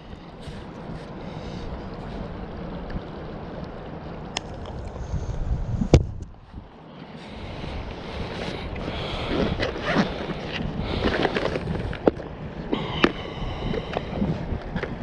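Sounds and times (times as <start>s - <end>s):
rushing splashing water: 0.0s - 15.0s.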